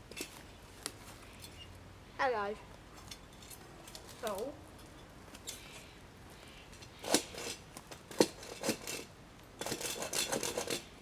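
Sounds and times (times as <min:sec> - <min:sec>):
hand saw cutting branch: 0:07.0 - 0:10.9.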